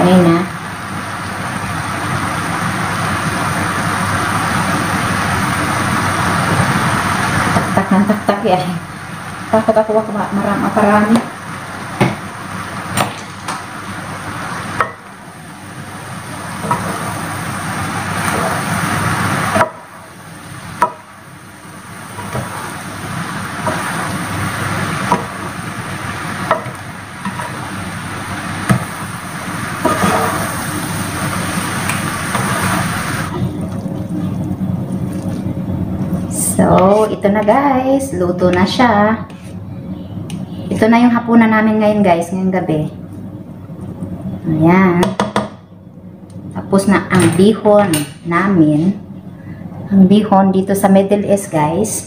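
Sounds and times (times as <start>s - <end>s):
noodles sizzling in pan: 0.0s - 39.6s.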